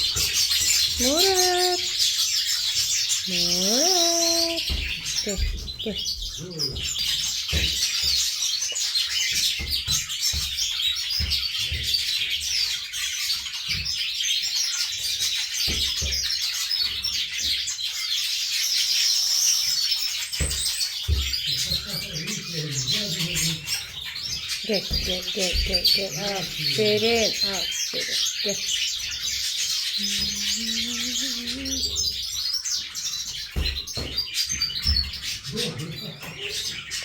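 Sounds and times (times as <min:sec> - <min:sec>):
small birds chirping: 0:00.0 - 0:37.0
soft low thumps: 0:24.7 - 0:27.6, 0:30.0 - 0:32.1.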